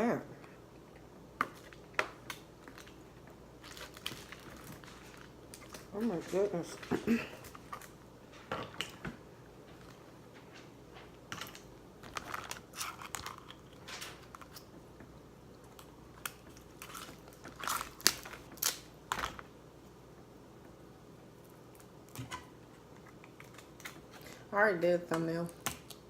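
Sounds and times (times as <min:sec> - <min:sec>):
shellfish shells cracking: 0:11.4 - 0:14.7, 0:15.7 - 0:19.4.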